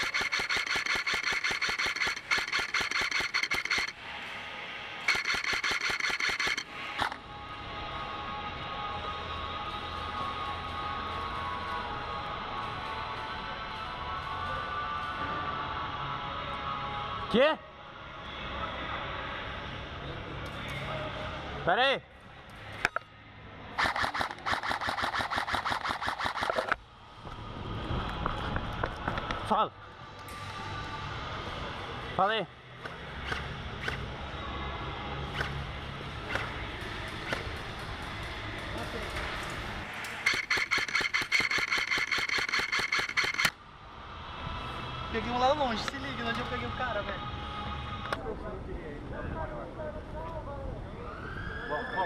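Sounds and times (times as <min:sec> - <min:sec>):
airsoft gun firing bursts: 0:00.0 - 0:03.9, 0:05.1 - 0:07.1, 0:23.8 - 0:26.7, 0:40.2 - 0:43.5
gearbox whining: 0:00.0 - 0:04.0, 0:05.1 - 0:07.2, 0:40.2 - 0:43.6.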